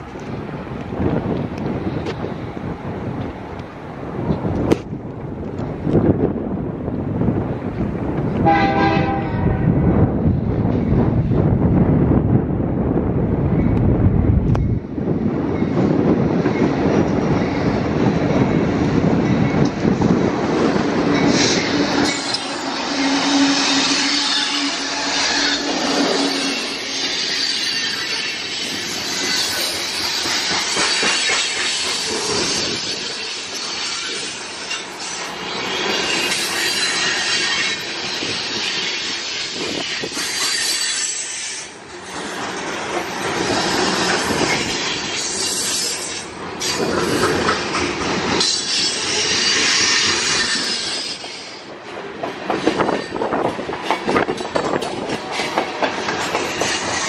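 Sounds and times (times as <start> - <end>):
freight train rolling past: 0.0 - 57.0
steel wheels squealing on rails: 14.5 - 57.0.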